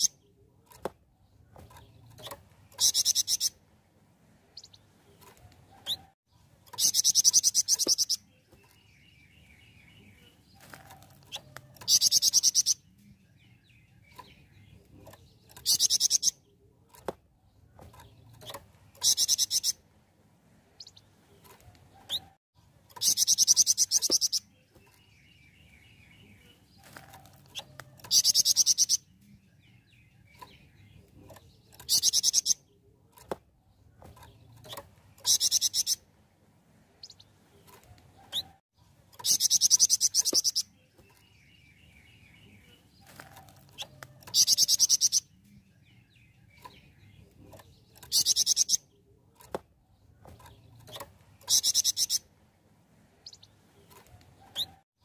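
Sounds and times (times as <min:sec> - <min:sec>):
soft bird twittering: 0:00.0 - 0:03.6, 0:04.5 - 0:19.8, 0:20.8 - 0:36.1, 0:37.0 - 0:52.3, 0:53.2 - 0:54.8
songbird trilling: 0:02.2 - 0:03.6, 0:06.7 - 0:10.2, 0:11.4 - 0:12.8, 0:15.5 - 0:16.4, 0:18.4 - 0:19.8, 0:23.0 - 0:26.5, 0:27.5 - 0:29.1, 0:35.2 - 0:36.0, 0:39.2 - 0:42.8, 0:43.8 - 0:47.2, 0:47.8 - 0:49.0, 0:50.6 - 0:52.3.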